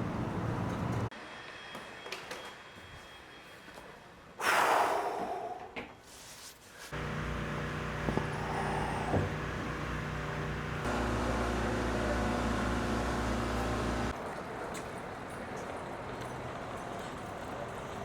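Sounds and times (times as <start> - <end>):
vehicle motor humming: 6.9 - 14.2.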